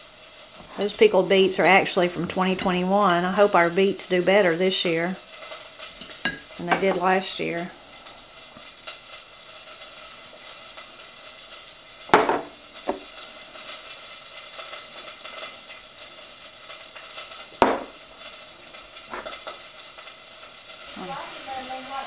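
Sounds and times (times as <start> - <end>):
food sizzling in a pan: 0.0 - 22.0
knocks of dishes or utensils: 12.1 - 13.1, 17.6 - 18.0.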